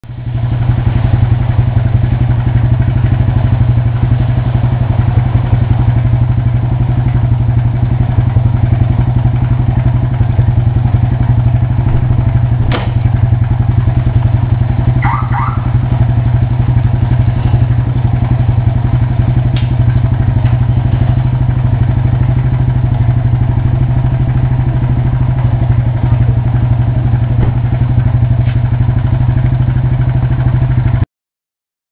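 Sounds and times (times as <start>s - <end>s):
motorcycle engine idling: 0.1s - 31.0s
gear engagement clunk: 11.9s - 13.2s.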